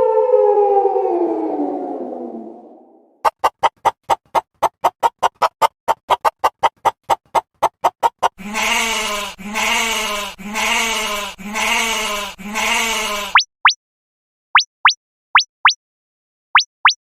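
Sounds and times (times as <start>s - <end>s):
short squeaky pitched pulses: 7.8s - 13.5s
wavering bleats: 8.4s - 13.4s.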